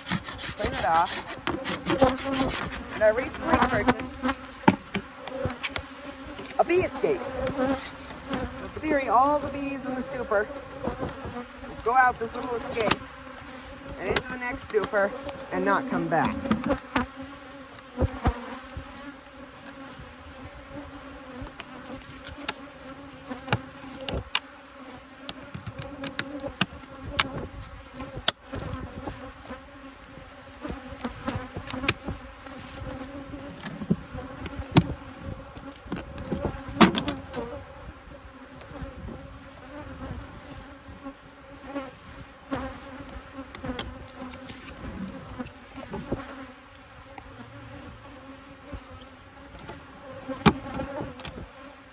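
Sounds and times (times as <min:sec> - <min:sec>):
hive boxes and tools knocking: 0:00.0 - 0:13.2, 0:13.8 - 0:18.9, 0:25.2 - 0:29.3, 0:30.6 - 0:32.2, 0:32.8 - 0:37.6, 0:49.6 - 0:51.5
honeybees buzzing: 0:00.0 - 0:51.9.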